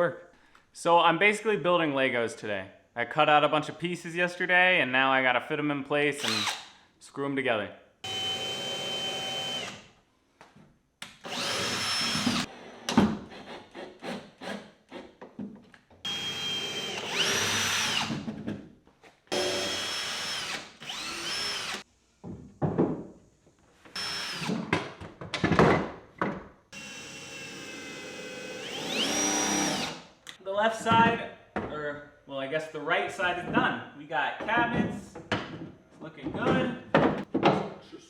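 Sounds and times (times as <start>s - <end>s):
cordless drill driving screws: 6.2s - 6.7s, 8.1s - 9.9s, 11.1s - 12.9s, 16.1s - 18.2s, 19.3s - 21.8s, 23.9s - 24.7s, 26.8s - 30.1s
knocks and clatter of handling: 24.7s - 26.5s, 34.4s - 37.9s.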